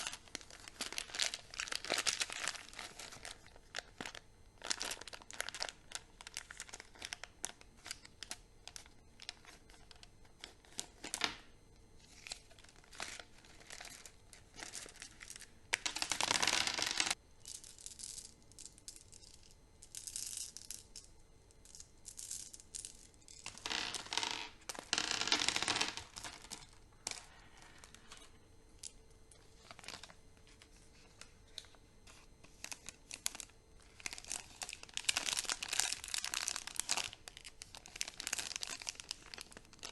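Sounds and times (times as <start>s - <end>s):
wrappers crinkling and tearing: 0.0s - 8.0s, 32.6s - 39.9s.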